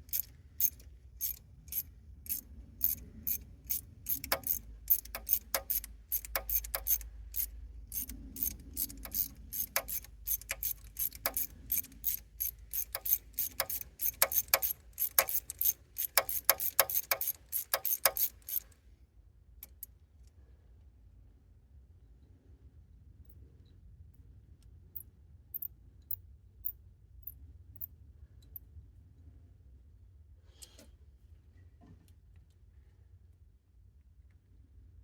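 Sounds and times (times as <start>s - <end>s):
socket ratchet clicking: 0.0s - 18.7s, 19.6s - 19.9s.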